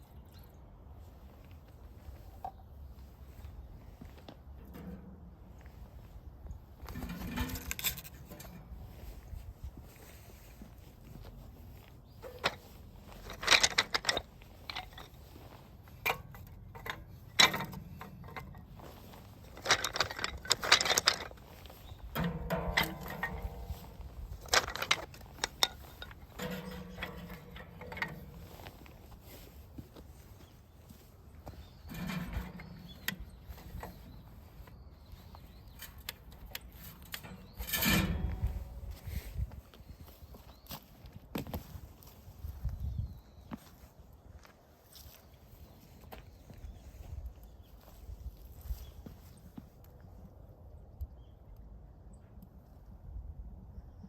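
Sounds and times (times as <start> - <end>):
metal rubbing and scraping: 4.6 - 30.3, 31.4 - 40.0
metal parts clinking and rattling: 6.8 - 9.2, 12.2 - 29.6, 31.4 - 34.2, 35.1 - 39.4.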